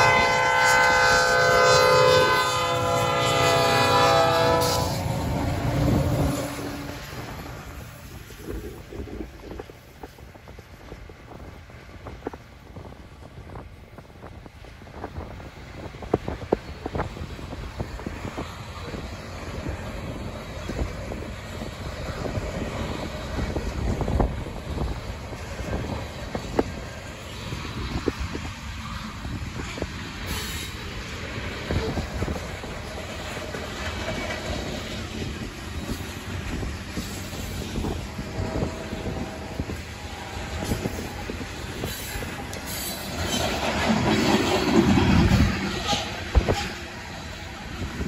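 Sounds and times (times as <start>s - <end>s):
train wheels rumbling on rails: 0.0s - 48.0s
train cars clanking: 15.0s - 48.0s.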